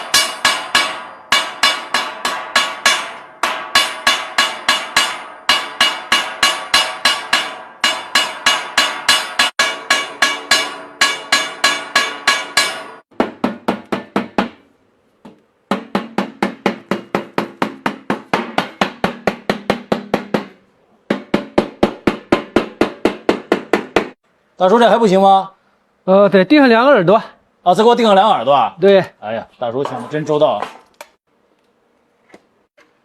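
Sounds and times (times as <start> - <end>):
hammer ringing on metal: 0.0 - 14.6, 15.7 - 20.5.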